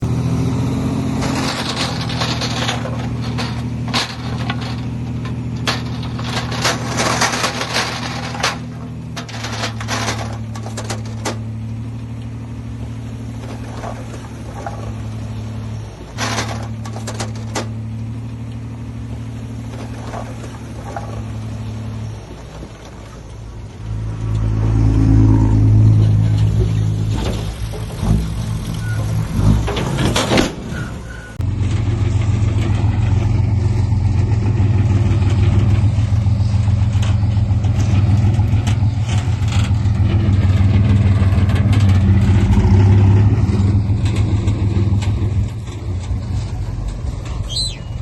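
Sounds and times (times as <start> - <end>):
heavy diesel engine running: 0.0 - 48.0
metallic clanks and rattles: 1.0 - 48.0.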